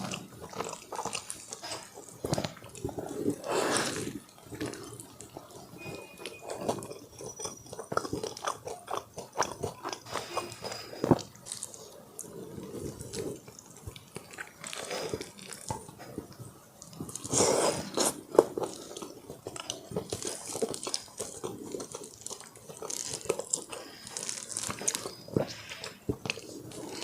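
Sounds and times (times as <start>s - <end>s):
crunchy chewing: 0.0s - 27.0s.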